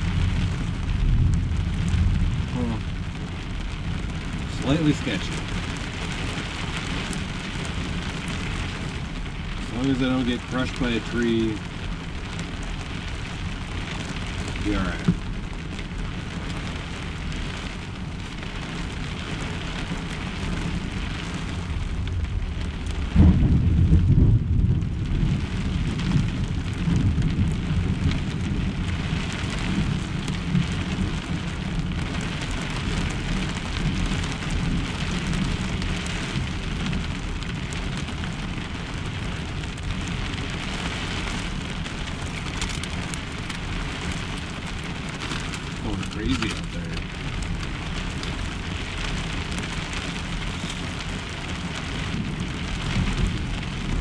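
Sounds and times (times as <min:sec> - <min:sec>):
heavy rain on a truck shell: 0:00.0 - 0:54.0
low thunder rumble: 0:00.0 - 0:54.0.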